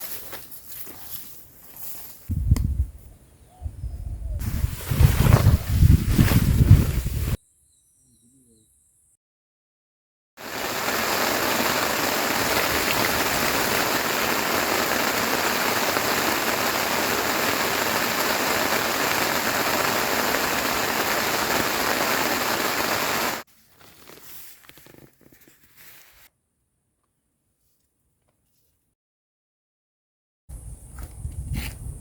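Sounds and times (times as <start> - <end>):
heavy rain hissing: 4.4 - 7.4, 10.4 - 23.5.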